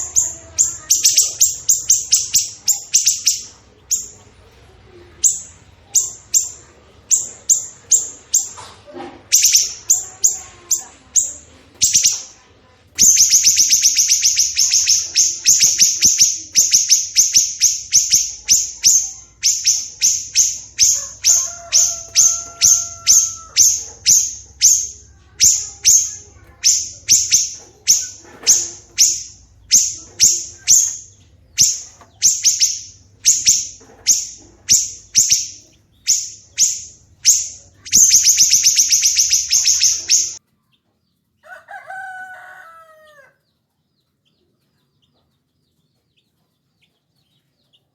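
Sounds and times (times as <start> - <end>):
songbird harsh chattering: 0.0 - 4.2, 5.2 - 8.6, 9.3 - 12.3, 13.0 - 40.4.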